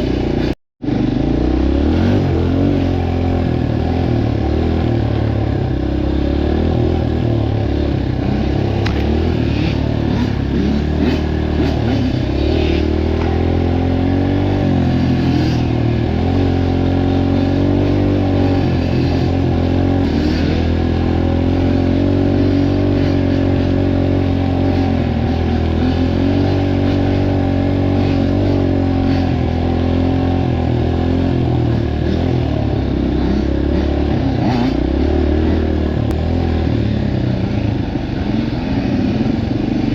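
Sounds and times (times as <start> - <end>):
dirt bike engine: 0.0 - 39.9.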